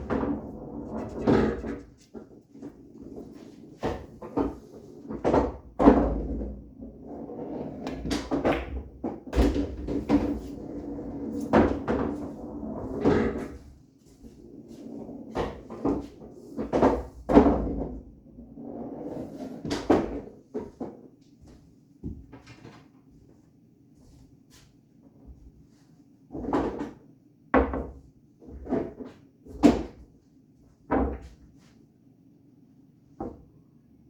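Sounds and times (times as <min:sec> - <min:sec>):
pool balls clacking: 0:00.0 - 0:13.6, 0:15.3 - 0:18.2
pool balls rolling: 0:00.0 - 0:13.7, 0:14.3 - 0:21.0.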